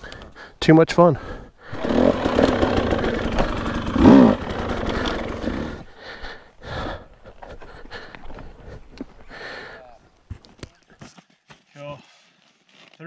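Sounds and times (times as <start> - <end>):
dirt bike engine revving: 1.7 - 5.8.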